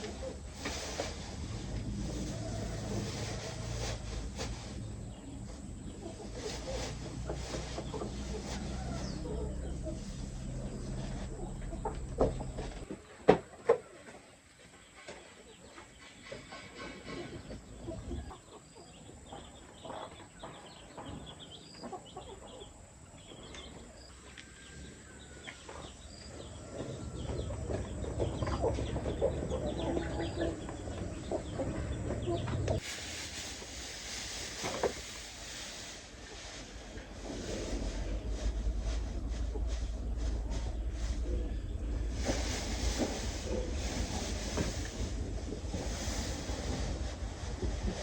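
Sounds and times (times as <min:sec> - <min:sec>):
chickens clucking: 0:00.0 - 0:48.0
windy hiss: 0:32.7 - 0:48.0.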